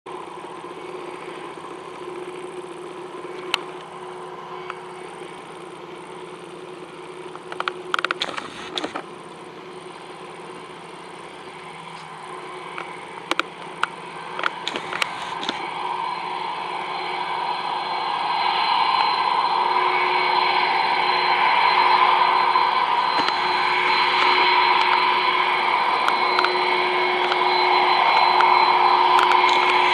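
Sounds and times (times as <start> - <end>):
jet engines whining: 0.1 - 29.9
sharp clicks: 7.4 - 9.0, 12.8 - 15.6.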